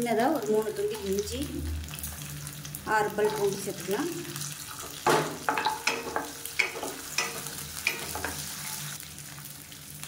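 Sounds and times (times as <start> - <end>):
food sizzling in hot oil: 0.0 - 10.0
spatula scraping and tapping pan: 4.8 - 8.8.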